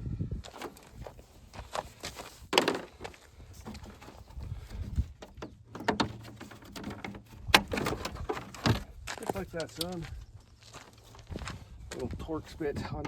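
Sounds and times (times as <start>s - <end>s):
clicks and clunks of hand tools: 0.5s - 10.0s, 12.4s - 13.0s.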